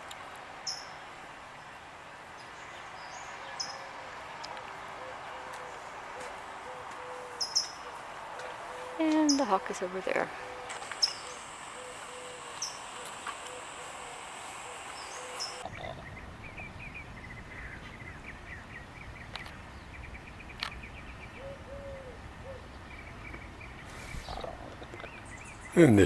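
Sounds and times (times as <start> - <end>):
small birds chirping: 5.5 - 14.0, 14.6 - 26.0
brief low call: 25.8 - 26.0.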